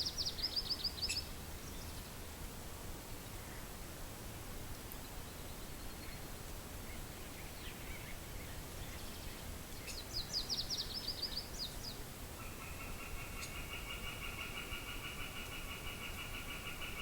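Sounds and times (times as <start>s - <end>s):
birds singing: 0.0s - 2.1s, 6.9s - 17.0s.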